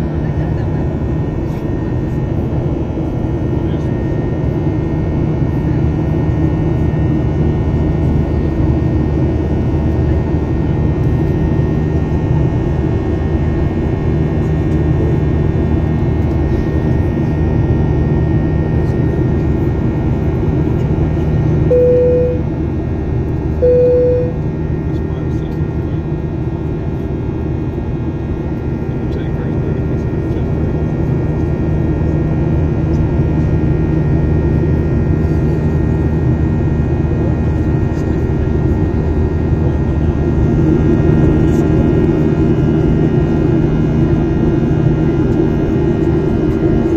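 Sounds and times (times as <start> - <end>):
jet engines droning: 0.0 - 46.9
short tones: 21.7 - 22.4, 23.6 - 24.4.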